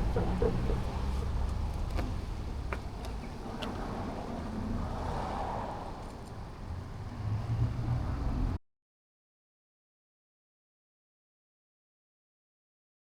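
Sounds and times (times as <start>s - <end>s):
motorcycle engine rumble: 0.0s - 5.1s.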